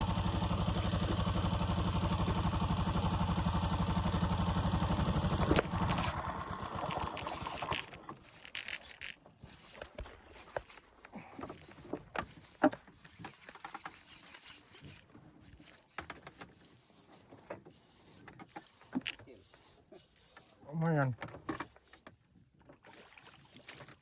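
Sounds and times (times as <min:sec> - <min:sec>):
small engine running: 0:00.0 - 0:09.2.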